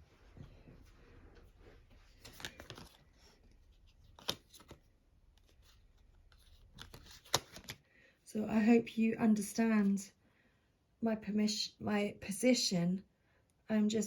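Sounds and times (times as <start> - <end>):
cards rustling: 1.8 - 7.8.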